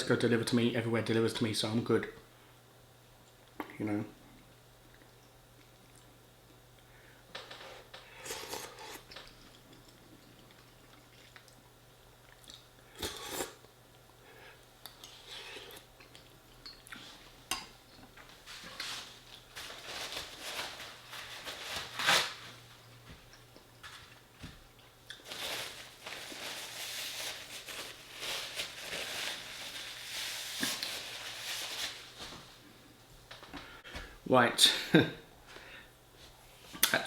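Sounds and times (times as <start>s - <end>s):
eating sounds: 8.0s - 13.8s.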